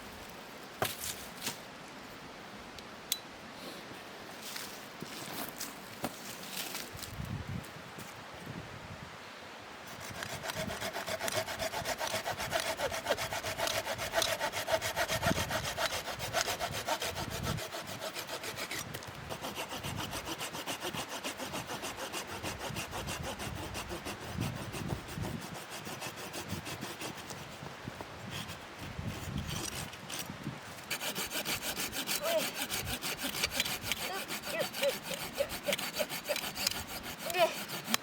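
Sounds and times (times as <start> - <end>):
hand saw cutting wood: 9.9 - 38.0.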